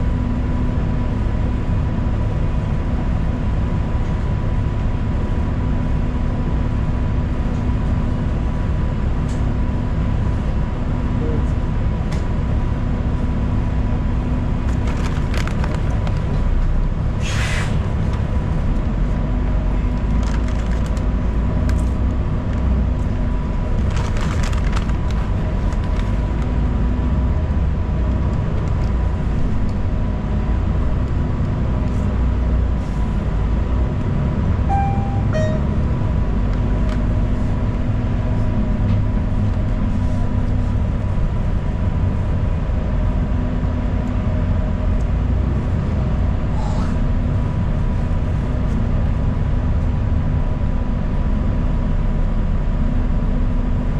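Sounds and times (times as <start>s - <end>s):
bus engine and road rumble: 0.0s - 53.9s
short air hisses: 17.2s - 17.8s
two-note electronic tone: 34.6s - 36.0s.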